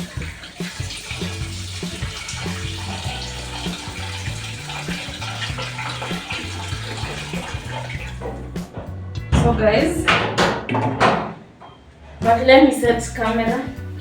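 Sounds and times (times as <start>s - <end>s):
water running from kitchen tap: 0.0s - 8.6s
background music with bassline: 0.0s - 10.3s, 12.2s - 14.0s.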